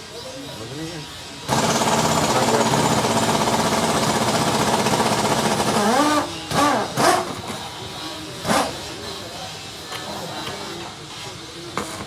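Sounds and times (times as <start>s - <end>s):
rapid mechanical rattle: 1.5s - 7.6s.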